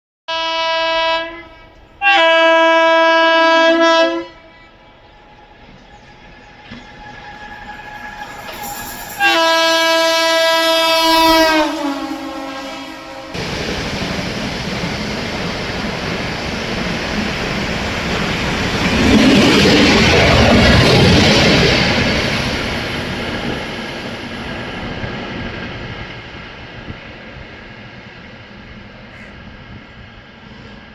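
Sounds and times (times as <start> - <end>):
train horn blasts: 0.3 - 5.6, 6.3 - 13.4
train running noise: 0.3 - 30.9.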